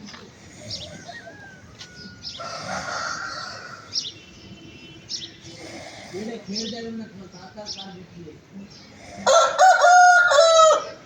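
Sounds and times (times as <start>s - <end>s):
chickens calling: 0.1s - 4.6s.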